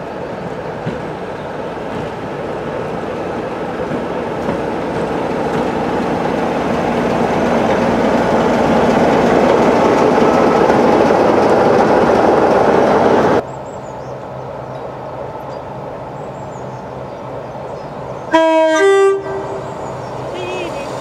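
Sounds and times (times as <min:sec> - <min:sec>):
diesel locomotive engine running: 0:00.0 - 0:21.0
two-tone train horn: 0:18.3 - 0:20.9.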